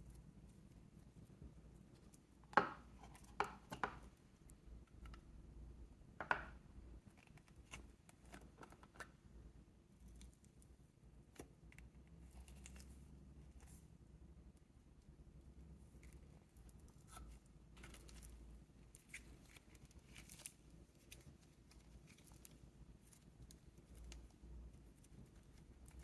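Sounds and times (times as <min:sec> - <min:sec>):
soft clicks and crackles: 0:07.0 - 0:14.6, 0:15.7 - 0:26.0.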